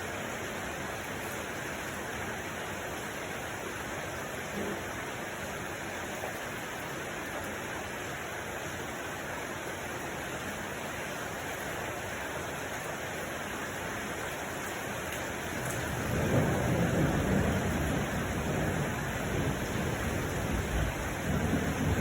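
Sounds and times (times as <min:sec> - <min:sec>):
steady rain: 0:00.0 - 0:22.0
low rumble of thunder: 0:15.6 - 0:22.0.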